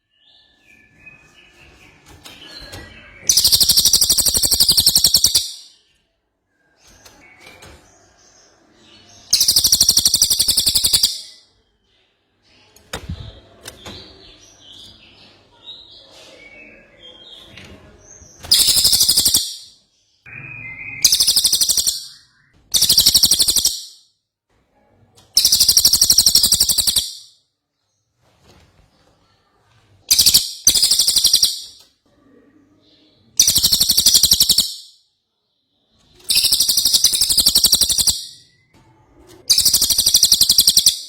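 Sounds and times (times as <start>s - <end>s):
bird twittering: 3.2s - 5.7s, 9.3s - 11.4s, 18.5s - 19.7s, 20.3s - 24.0s, 25.4s - 27.3s, 30.1s - 31.8s, 33.4s - 34.9s, 36.3s - 38.6s, 39.5s - 41.0s
bird rattling trills: 22.7s - 23.8s, 39.5s - 41.0s.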